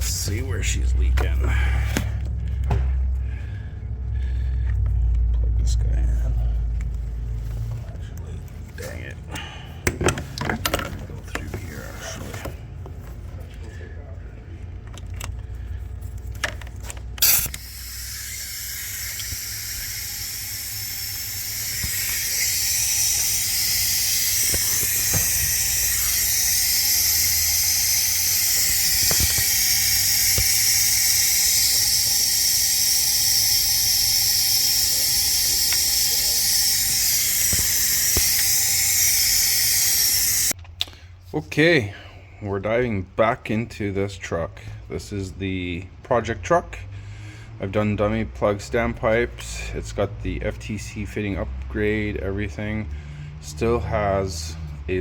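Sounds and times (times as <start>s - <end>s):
compressed air hissing: 17.2s - 40.6s
sharp air burst: 17.2s - 40.6s.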